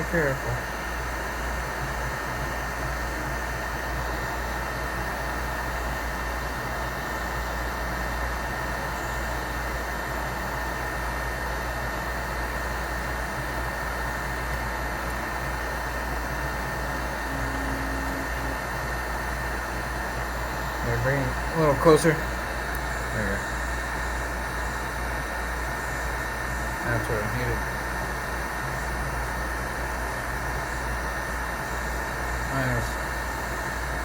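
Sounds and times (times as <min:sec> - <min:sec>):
faint high whine: 0:12.9 - 0:34.0.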